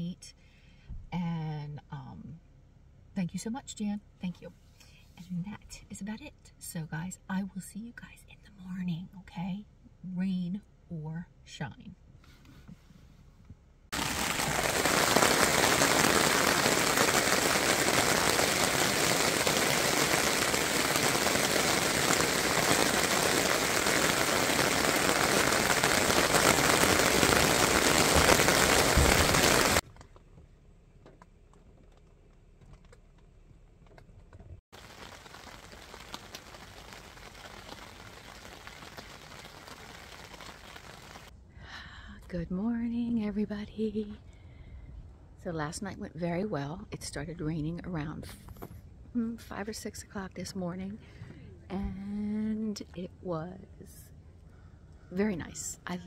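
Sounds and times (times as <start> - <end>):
faint rain hiss: 13.9 - 29.8, 34.8 - 42.1
rain drumming on fabric canopy: 13.9 - 29.8, 34.7 - 41.3.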